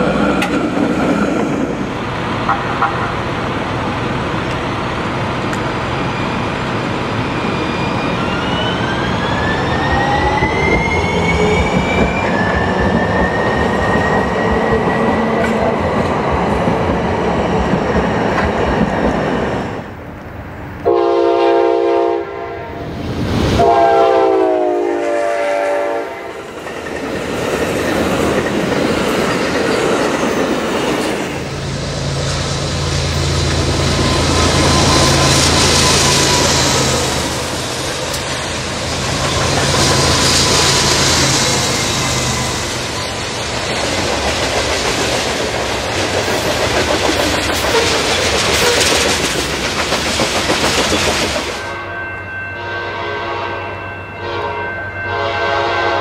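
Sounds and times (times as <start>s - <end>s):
train rumbling past: 0.0s - 56.0s
train air horn blasts: 20.8s - 22.9s, 23.5s - 26.4s, 52.6s - 56.0s.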